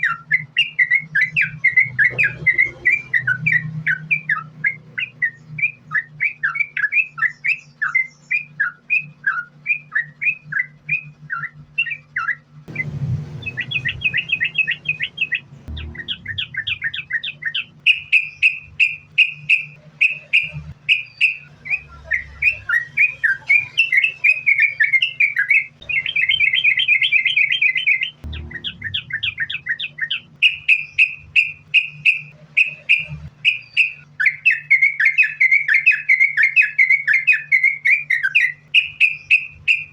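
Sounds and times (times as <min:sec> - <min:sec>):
bulbul singing: 0:00.0 - 0:39.9
steady low hum: 0:00.0 - 0:39.9.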